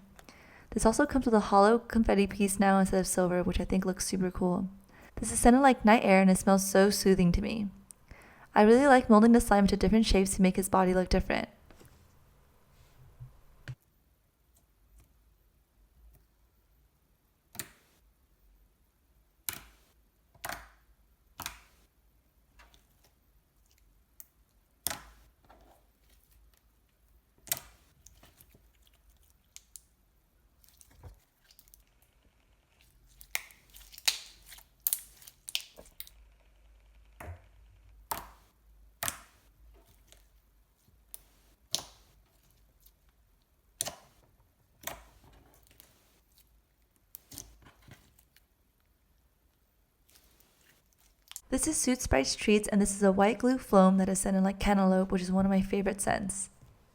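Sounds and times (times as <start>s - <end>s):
slime clicking and popping: 33.2s - 36.1s.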